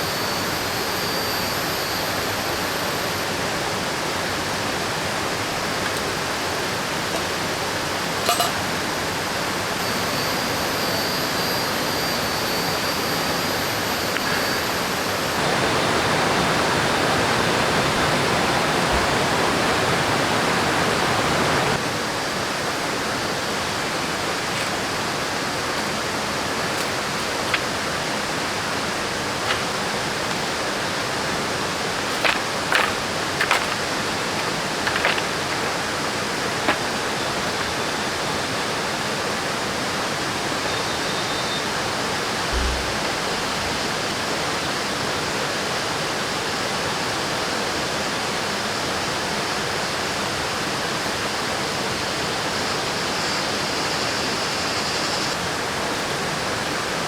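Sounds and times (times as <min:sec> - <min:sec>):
river water rushing: 0:15.3 - 0:40.6.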